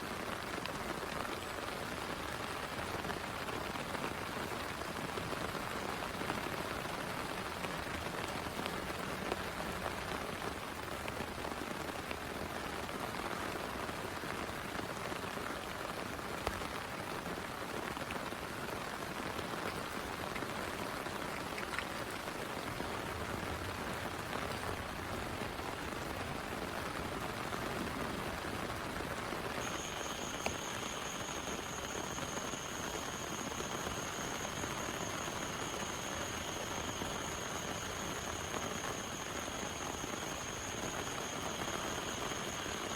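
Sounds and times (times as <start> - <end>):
steady rain falling: 0.0 - 42.9
thin steady high tone: 29.6 - 42.9.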